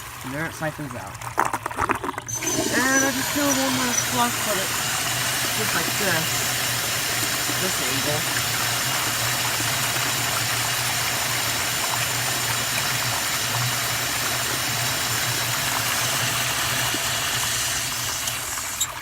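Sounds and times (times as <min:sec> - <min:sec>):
water rushing through toilet bowl: 0:00.0 - 0:19.0.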